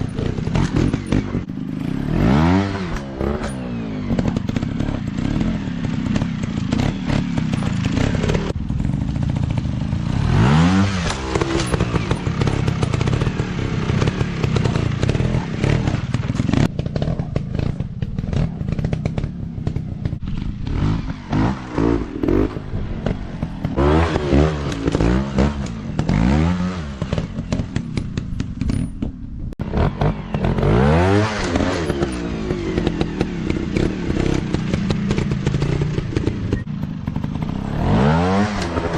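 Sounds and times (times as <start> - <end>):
dirt bike engines revving: 0.0 - 38.9
rattling clatter: 3.0 - 9.6, 11.0 - 23.8, 27.0 - 29.3.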